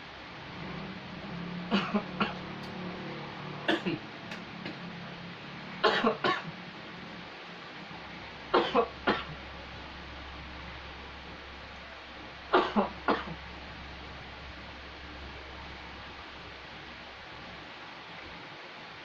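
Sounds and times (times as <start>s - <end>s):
man coughing: 1.7s - 2.4s.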